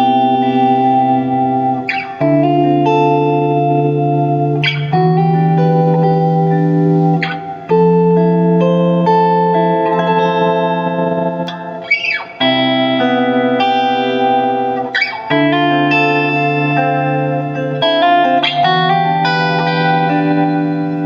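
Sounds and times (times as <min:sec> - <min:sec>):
clean electric guitar chords: 0:00.0 - 0:21.0.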